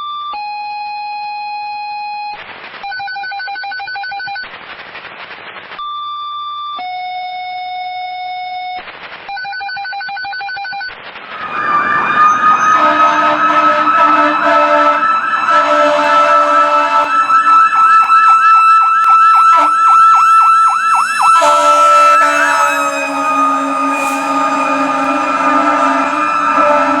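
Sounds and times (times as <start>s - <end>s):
radio static bursts: 11.2s - 27.0s
fire engine siren wailing: 11.3s - 27.0s
radio alert tones: 11.3s - 27.0s.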